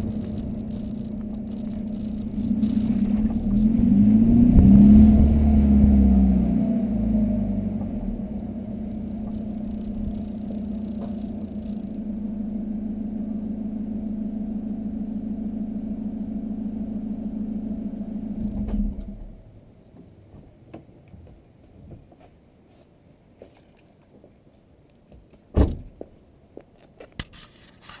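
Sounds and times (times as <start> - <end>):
diesel car engine running: 0.0 - 19.5.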